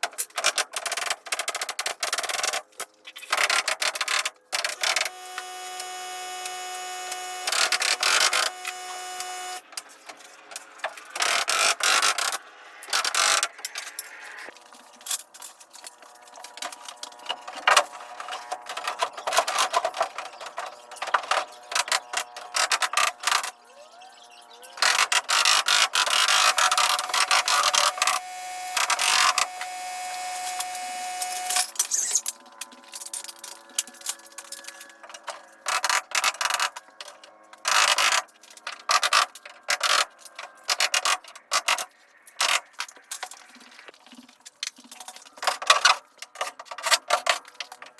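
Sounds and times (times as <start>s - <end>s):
power tool motor whine: 4.8s - 9.6s, 25.3s - 32.2s.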